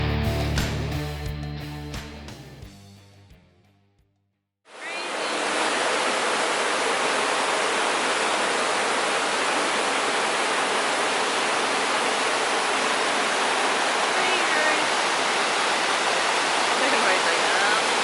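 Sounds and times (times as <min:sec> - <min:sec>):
guitar music: 0:00.0 - 0:02.8
waterfall rushing: 0:04.8 - 0:18.0.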